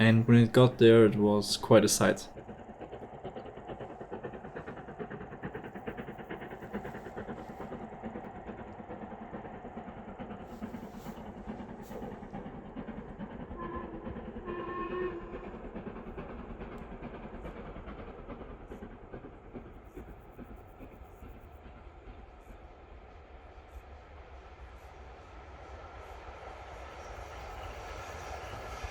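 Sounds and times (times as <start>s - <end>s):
steam locomotive exhaust beating: 0.0s - 28.9s
steam locomotive whistle: 13.6s - 15.4s.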